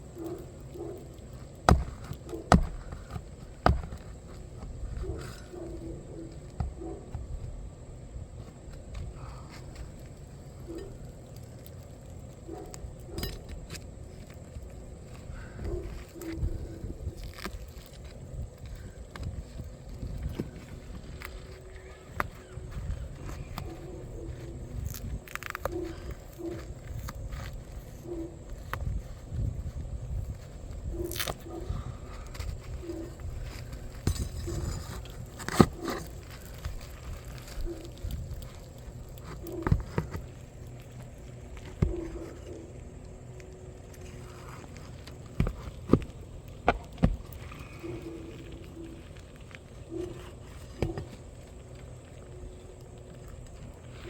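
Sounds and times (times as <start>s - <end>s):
dove cooing: 47.4s - 49.1s.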